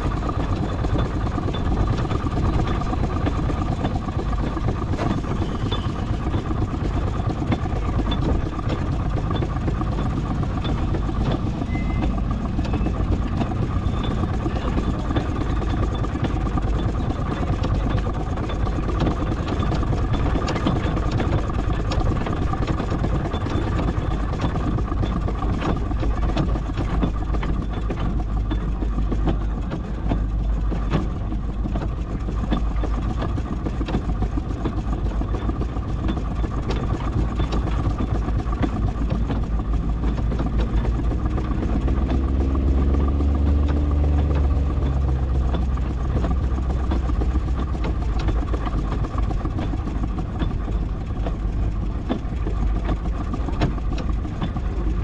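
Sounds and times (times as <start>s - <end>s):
deeper engine drone: 0.0s - 55.0s
steam engine mechanical rumble: 0.0s - 55.0s.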